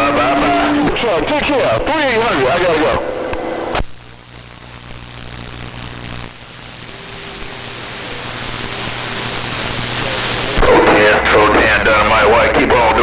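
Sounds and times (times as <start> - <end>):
radio static hiss: 0.0 - 13.0
radio click: 9.5 - 13.0.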